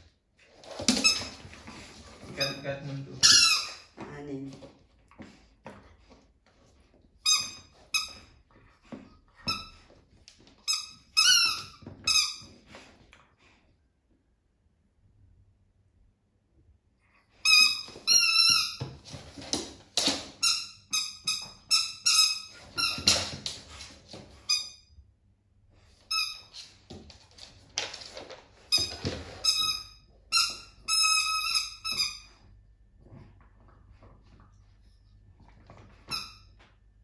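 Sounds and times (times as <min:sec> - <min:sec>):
squeaky dog toy squeaking: 0:02.4 - 0:03.9, 0:07.2 - 0:08.3, 0:10.6 - 0:12.5, 0:17.4 - 0:18.8, 0:20.4 - 0:23.2, 0:28.7 - 0:32.3.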